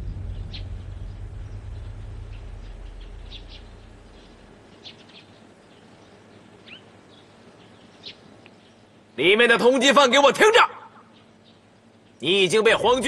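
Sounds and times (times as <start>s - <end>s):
low rumble: 0.0s - 4.9s
faint bird chirps: 0.0s - 9.2s, 10.8s - 12.4s.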